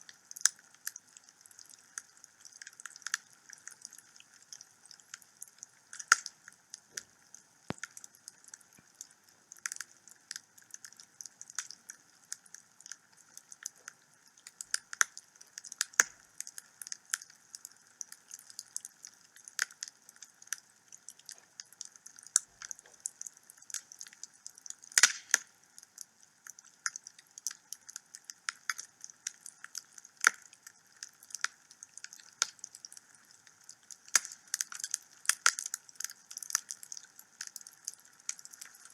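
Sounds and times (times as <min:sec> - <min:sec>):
wood fire crackling: 0:00.3 - 0:38.9
sharp pops: 0:25.0 - 0:25.4.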